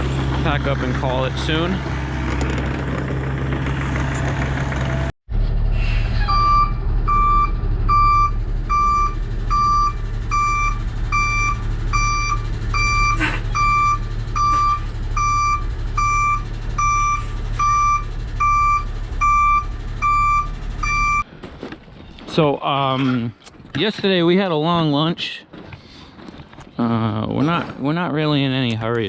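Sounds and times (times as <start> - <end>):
diesel engine running: 0.0 - 22.0
backup alarm beeping: 6.3 - 21.2.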